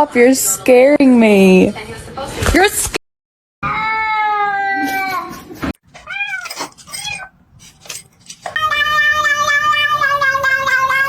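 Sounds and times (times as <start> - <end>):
cat meowing: 6.0 - 7.3
cat yowling: 6.0 - 7.3.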